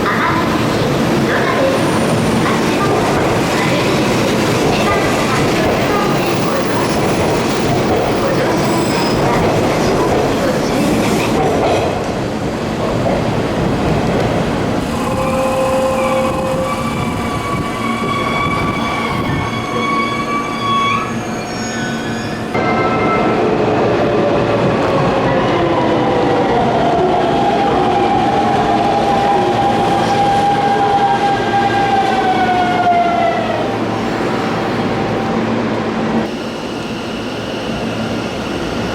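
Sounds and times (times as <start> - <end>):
train running rumble: 0.0 - 19.7.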